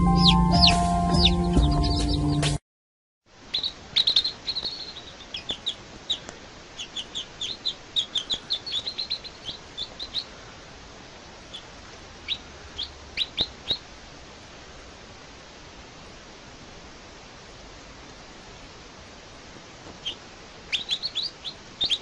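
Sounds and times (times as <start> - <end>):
baby birds chirping: 0.0 - 2.5, 3.5 - 10.5, 11.4 - 13.9, 19.9 - 22.0
steady hiss: 3.3 - 22.0.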